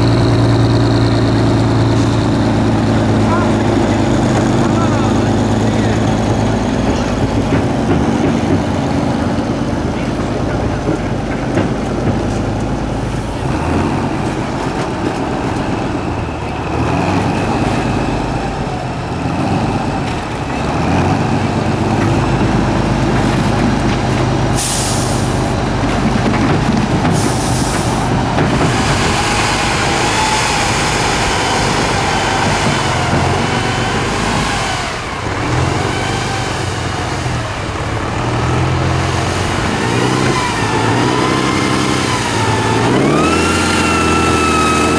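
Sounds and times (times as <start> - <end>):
truck diesel engine revving: 0.0 - 44.9
air brake hisses: 24.6 - 25.6, 27.2 - 28.1.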